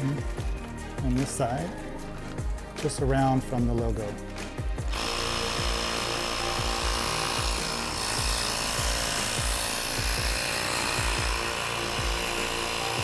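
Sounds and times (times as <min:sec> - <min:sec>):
air pump hissing: 0:00.0 - 0:13.0
drum beat in background music: 0:00.0 - 0:13.0.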